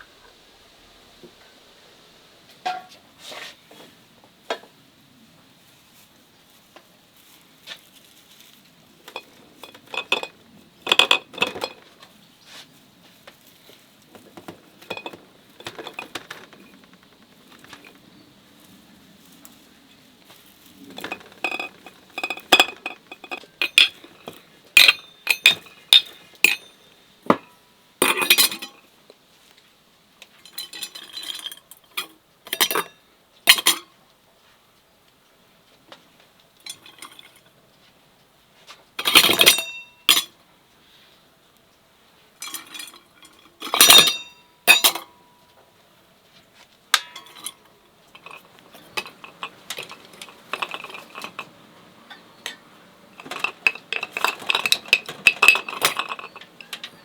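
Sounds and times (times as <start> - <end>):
dishes and utensils clinking: 2.7 - 3.0, 9.1 - 11.9, 14.4 - 18.0, 20.9 - 28.9, 30.4 - 33.9, 36.6 - 37.4, 39.0 - 40.3, 42.4 - 45.2, 46.9 - 57.0
kitchenware clattering: 9.1 - 11.9, 14.3 - 18.0, 20.9 - 28.8, 30.5 - 33.9, 39.0 - 40.3, 42.4 - 45.2, 47.0 - 57.0.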